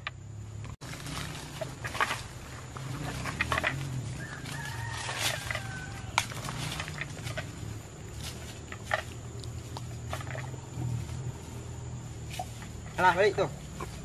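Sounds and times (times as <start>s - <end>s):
footsteps through undergrowth: 0.8s - 14.0s
rooster crowing: 4.0s - 6.6s.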